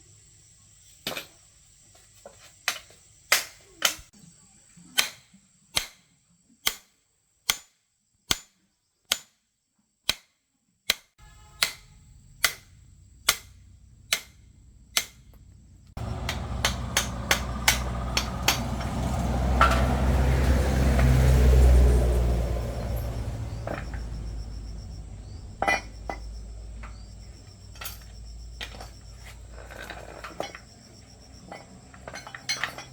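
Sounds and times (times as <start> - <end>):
low machine rumble: 12.0 - 32.9.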